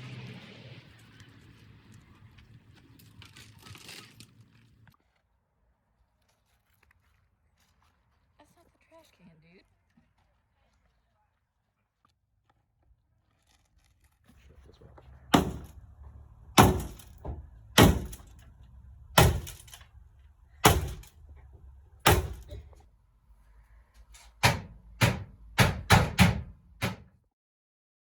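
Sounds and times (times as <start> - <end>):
heavy sharp knocks: 15.3 - 18.4, 19.1 - 19.8, 20.6 - 22.7, 24.4 - 27.1.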